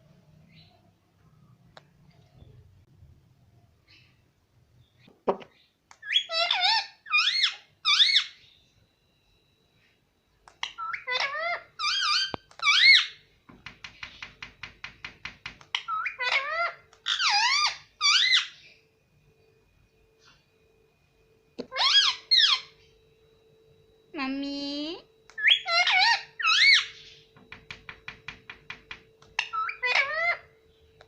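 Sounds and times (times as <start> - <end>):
parrot warbling calls: 6.0 - 8.4, 10.6 - 13.2, 15.7 - 18.6, 21.6 - 22.8, 25.4 - 27.2, 29.4 - 30.6.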